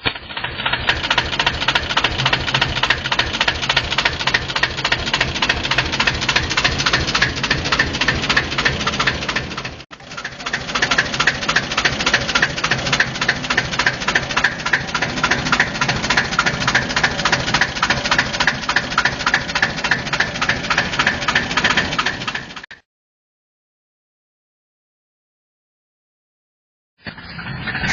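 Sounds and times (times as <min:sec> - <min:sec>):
diesel locomotive engine knocking: 0:00.0 - 0:22.8.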